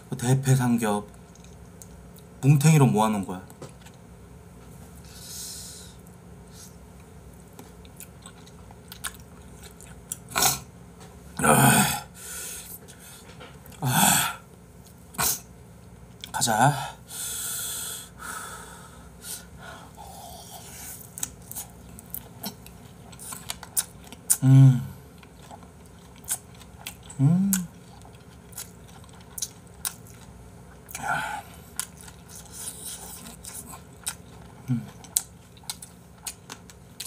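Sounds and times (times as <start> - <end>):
wet chewing: 7.4 - 10.7, 21.0 - 24.4, 25.1 - 37.0.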